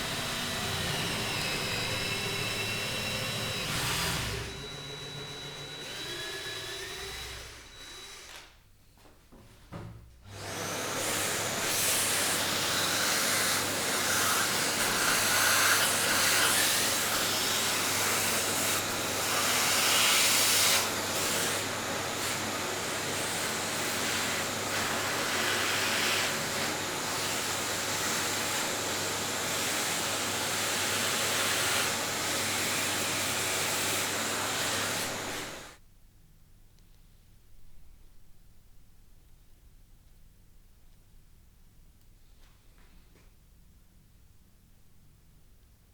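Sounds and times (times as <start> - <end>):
workshop tool motor running: 0.0 - 8.6, 10.3 - 35.8.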